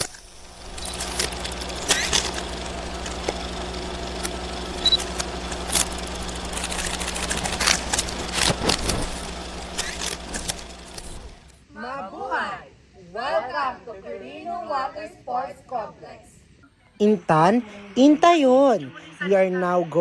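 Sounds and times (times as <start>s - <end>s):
vehicle engine droning: 0.4s - 11.5s.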